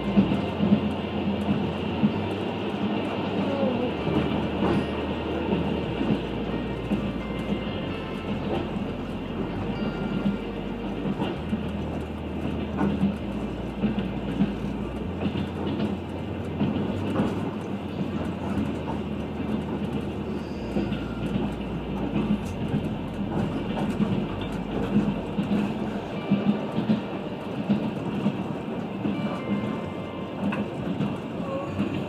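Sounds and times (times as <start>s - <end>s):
train wheels rumbling on rail: 0.0s - 32.0s.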